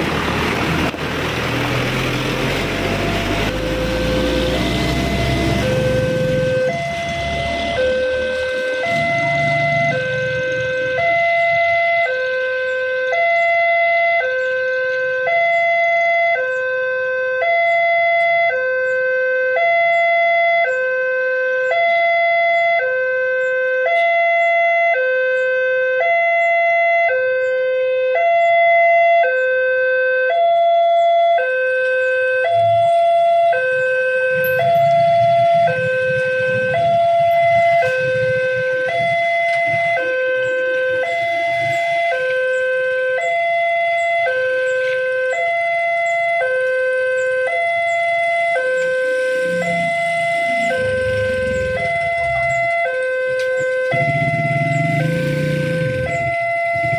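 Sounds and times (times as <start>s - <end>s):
two-tone crossing alarm: 3.0s - 56.9s
low rumble: 48.4s - 53.4s.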